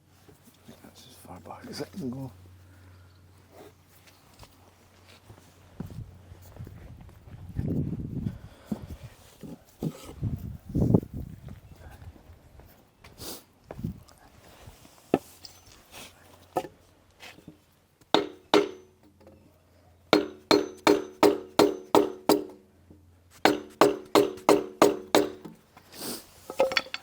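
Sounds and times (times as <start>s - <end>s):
hammer blows on metal: 18.2s - 19.0s, 20.2s - 22.6s, 23.4s - 25.5s.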